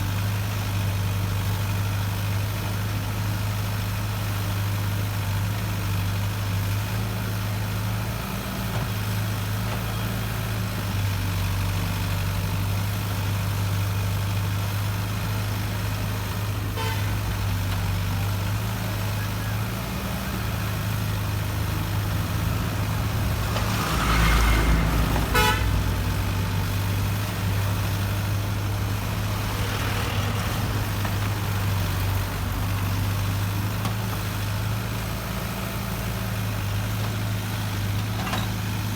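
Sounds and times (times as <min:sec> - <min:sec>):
excavator diesel engine droning: 0:00.0 - 0:38.9.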